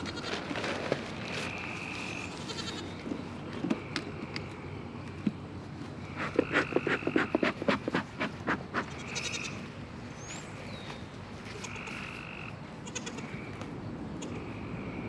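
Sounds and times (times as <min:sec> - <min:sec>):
goat bleating: 0:02.2 - 0:02.9, 0:12.8 - 0:13.3.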